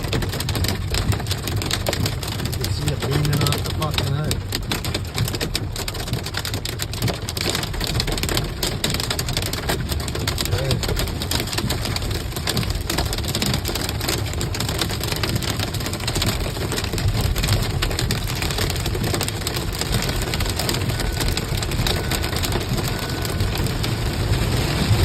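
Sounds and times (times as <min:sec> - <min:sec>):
hail and rain pelting: 0:00.0 - 0:25.0
low rumble: 0:19.9 - 0:25.0.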